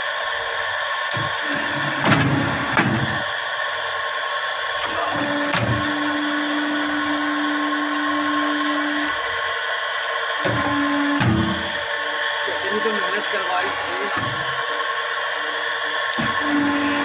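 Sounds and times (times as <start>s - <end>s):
hydraulic press motor whirring: 0.0s - 17.0s
steady low hum: 0.0s - 17.0s.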